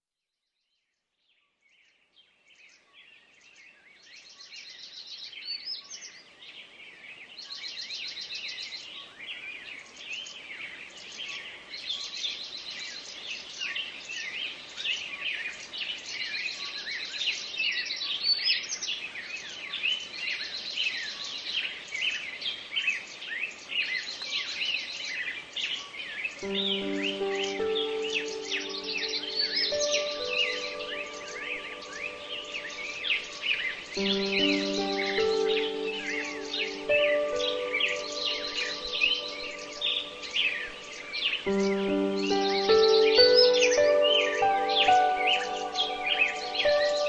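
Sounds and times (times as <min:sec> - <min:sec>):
birds chirping: 0:19.4 - 0:47.0.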